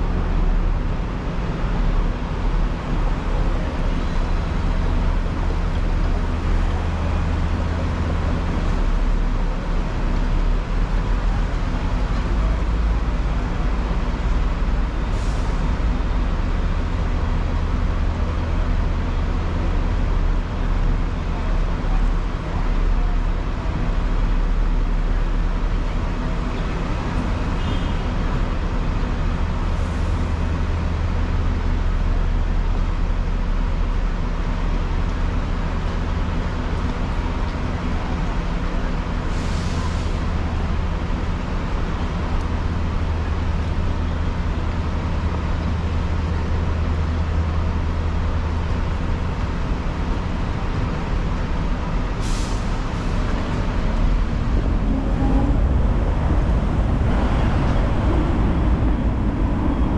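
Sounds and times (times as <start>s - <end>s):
road traffic noise: 0.0s - 59.9s
tram hum and rumble: 0.0s - 59.9s
short hiss of air: 39.3s - 40.2s, 52.2s - 53.3s.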